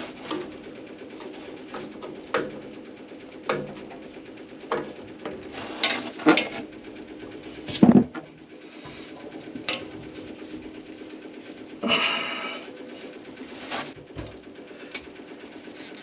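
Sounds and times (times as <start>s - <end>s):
hand tools clanking: 3.4s - 12.6s.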